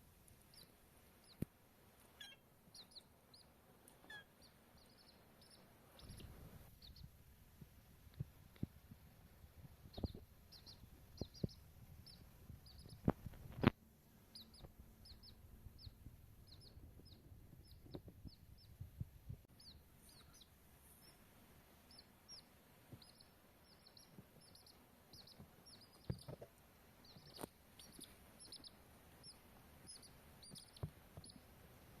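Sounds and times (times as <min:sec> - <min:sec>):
baby chicks peeping: 0:00.4 - 0:07.2, 0:08.1 - 0:32.0.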